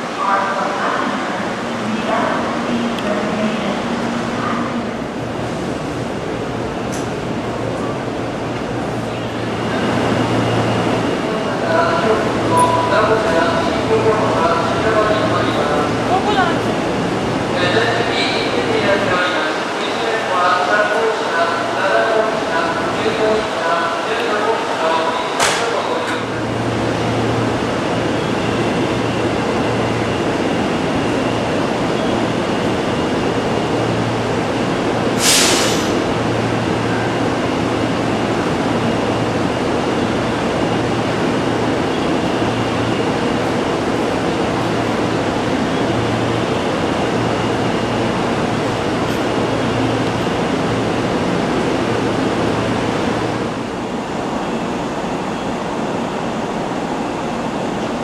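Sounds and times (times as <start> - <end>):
train running hum: 0.0 - 58.0
short hiss: 35.2 - 36.0.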